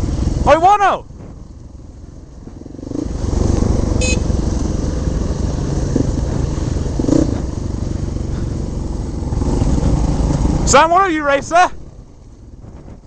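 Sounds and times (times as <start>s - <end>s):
motorcycle engine under load: 1.1s - 13.0s.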